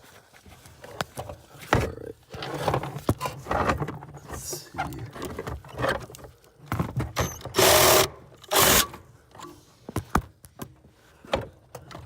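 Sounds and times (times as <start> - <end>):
power drill boring through sheet metal: 7.5 - 9.0.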